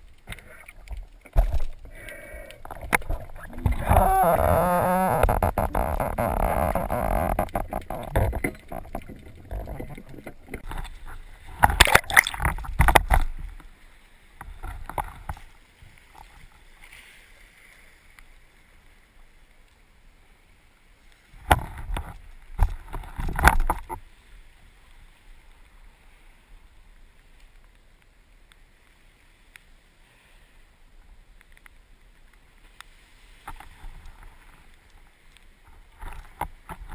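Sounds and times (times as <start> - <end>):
water sloshing: 0.0 - 13.6
water splashing and bubbling: 0.0 - 13.8.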